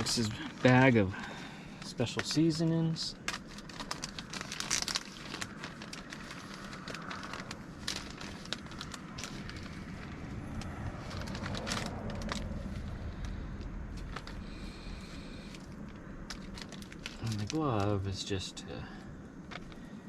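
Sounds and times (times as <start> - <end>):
paper packaging crinkling: 0.0 - 18.4
low rumble: 3.2 - 17.5.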